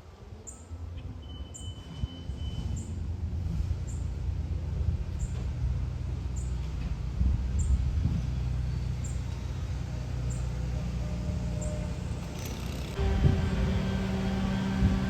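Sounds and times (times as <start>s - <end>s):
faint high chirp: 0.4s - 3.0s
distant aircraft rumble: 2.9s - 15.0s.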